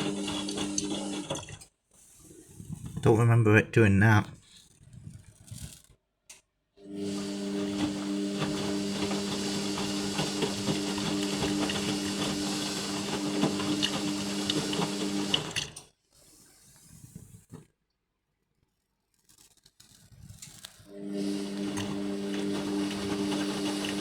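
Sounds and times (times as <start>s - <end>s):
washing machine motor humming: 0.0s - 1.6s, 6.8s - 15.8s, 21.0s - 24.0s.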